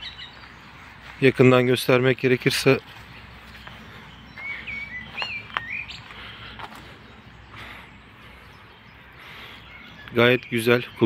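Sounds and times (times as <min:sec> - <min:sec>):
bird chirping whistled notes: 0:04.2 - 0:06.0.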